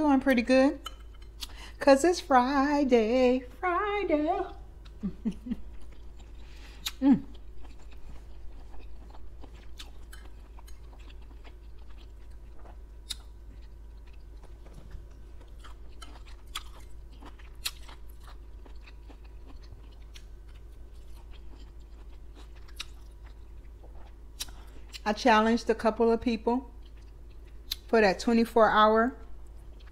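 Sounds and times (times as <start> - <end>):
person chewing with crunches: 0.8 - 1.8, 4.3 - 25.1, 26.7 - 27.9, 29.3 - 29.9.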